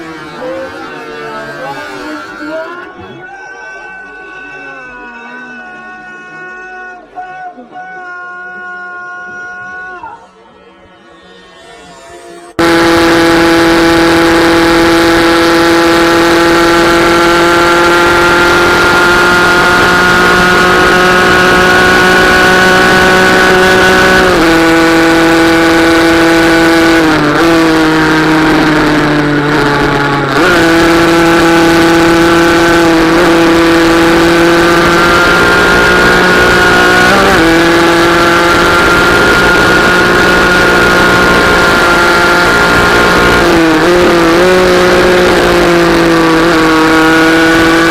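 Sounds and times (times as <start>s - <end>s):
motorcycle engine at high revs: 12.6s - 47.9s.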